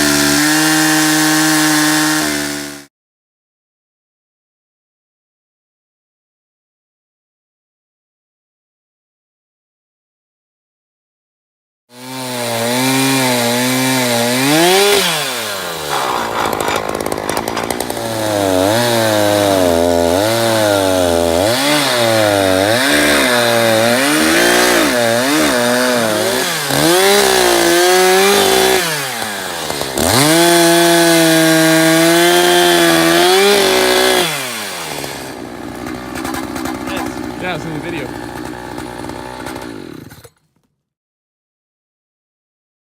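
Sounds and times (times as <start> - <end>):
chainsaw cutting wood: 0.0 - 2.9, 11.9 - 40.7.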